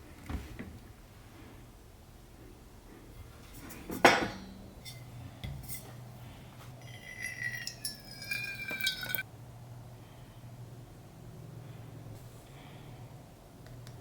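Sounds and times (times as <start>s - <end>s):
low steady hum: 1.1s - 14.0s
household clinks and knocks: 6.8s - 9.2s.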